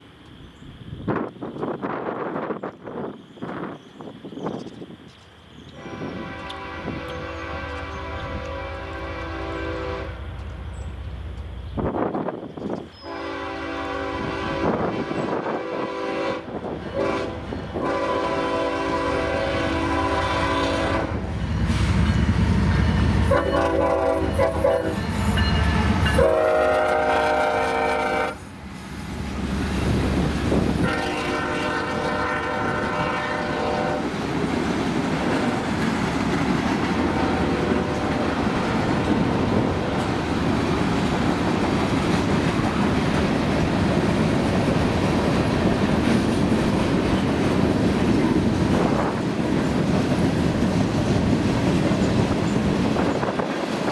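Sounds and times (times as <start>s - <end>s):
train rumbling past: 0.0s - 53.9s
locomotive air horn blasts: 5.8s - 10.3s, 13.0s - 21.3s, 22.7s - 28.4s, 30.8s - 34.1s, 37.0s - 40.2s
wheels clacking over rail joints: 21.3s - 53.9s.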